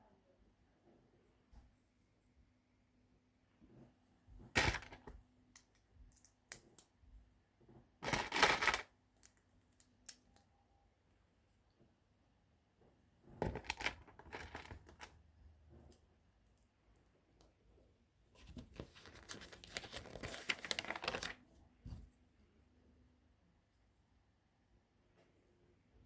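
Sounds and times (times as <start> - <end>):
plastic packaging crinkling and tearing: 18.8 - 21.4.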